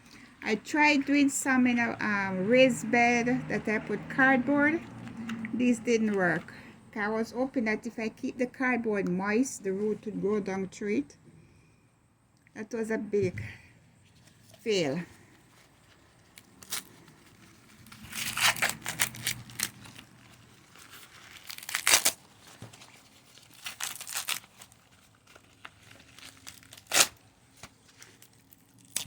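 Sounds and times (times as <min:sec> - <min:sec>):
corn husks tearing and rustling: 0:15.4 - 0:29.0.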